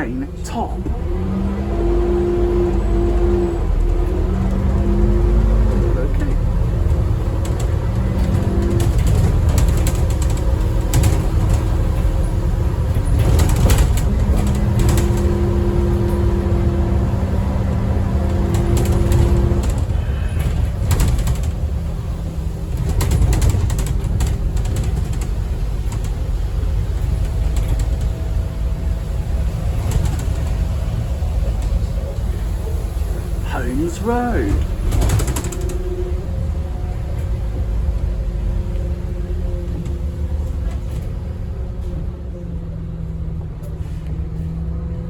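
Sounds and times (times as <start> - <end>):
bus engine rumbling: 0.0 - 45.0
bodywork knocks and rattles: 6.5 - 16.3, 17.8 - 32.0.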